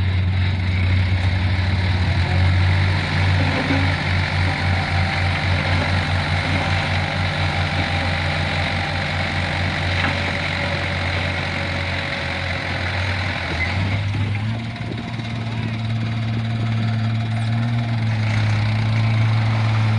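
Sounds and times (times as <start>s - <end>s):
diesel truck engine throbbing: 0.0s - 19.9s.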